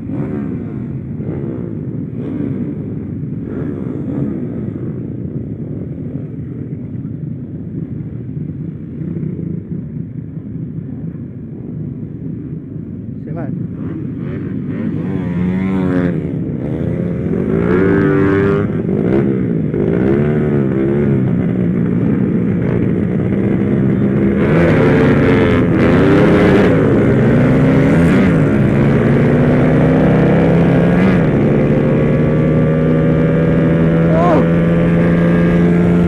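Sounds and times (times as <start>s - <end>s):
small motorcycle engine revving: 0.0s - 5.2s, 13.8s - 36.0s.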